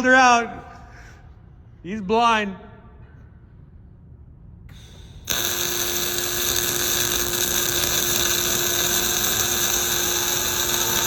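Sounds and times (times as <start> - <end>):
steady hum: 0.0 - 11.0
welding arc buzzing hiss: 4.7 - 11.0.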